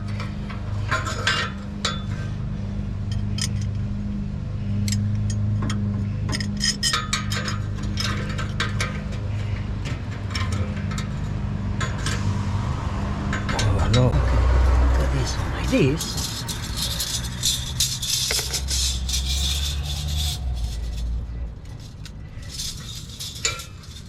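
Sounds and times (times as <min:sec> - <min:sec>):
steady low hum: 0:00.0 - 0:24.0
small metal parts clinking: 0:03.0 - 0:03.8, 0:04.8 - 0:12.2, 0:15.2 - 0:24.0.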